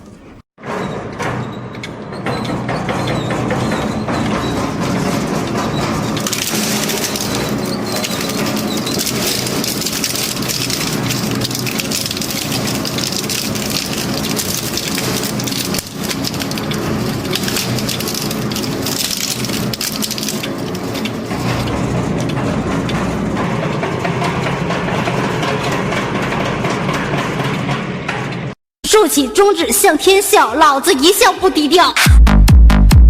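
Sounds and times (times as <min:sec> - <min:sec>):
metal shredder motor hum: 0:01.6 - 0:28.6
scrap metal crackling and crunching: 0:02.3 - 0:28.6.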